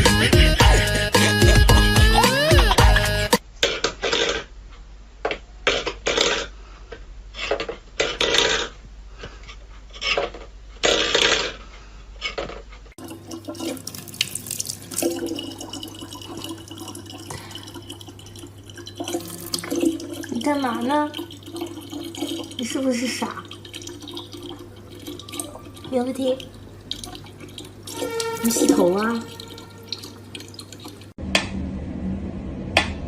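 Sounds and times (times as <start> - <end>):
water running from a tap: 13.0 - 31.2
water splashing: 13.0 - 31.2.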